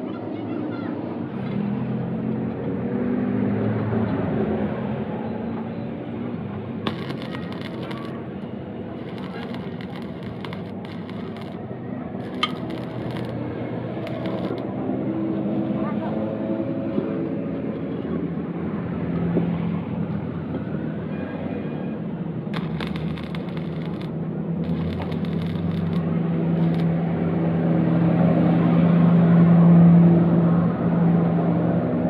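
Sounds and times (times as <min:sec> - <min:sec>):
motor humming: 0:06.9 - 0:08.2, 0:09.0 - 0:11.6, 0:12.2 - 0:14.6, 0:22.6 - 0:26.0.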